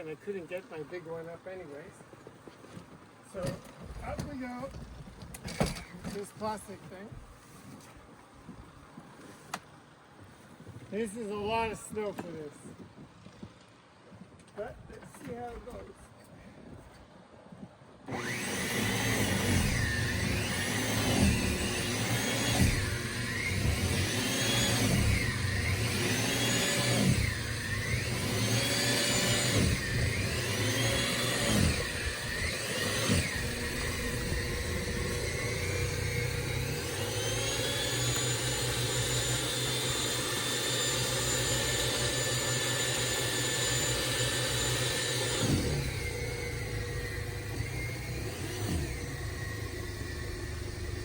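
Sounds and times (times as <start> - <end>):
snow thrower motor whining: 3.2 - 7.8, 18.1 - 51.0.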